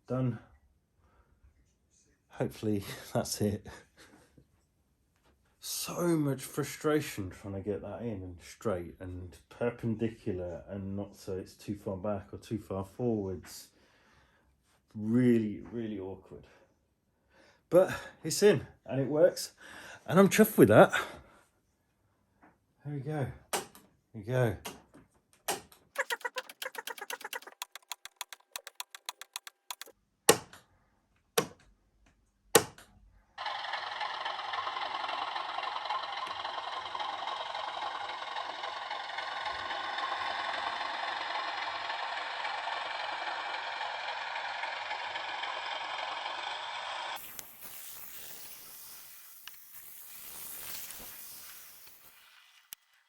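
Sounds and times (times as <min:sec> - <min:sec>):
point motor sharp clacks: 0:23.5 - 0:23.8, 0:25.5 - 0:30.6, 0:32.6 - 0:52.9
fast light clicks: 0:25.5 - 0:29.9.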